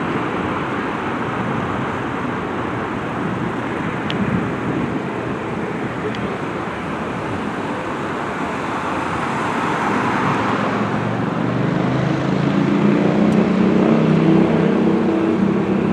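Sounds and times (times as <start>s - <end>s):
steady engine noise: 0.0s - 15.9s.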